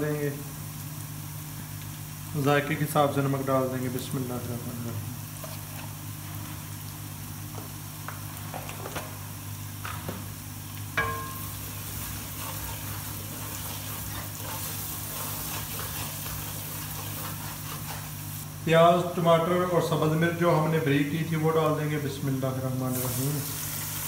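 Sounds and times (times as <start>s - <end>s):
spices sizzling in oil: 0.0s - 24.0s
spoon knocking against pot: 11.0s - 11.5s
wooden spoon scraping pot: 11.8s - 18.2s.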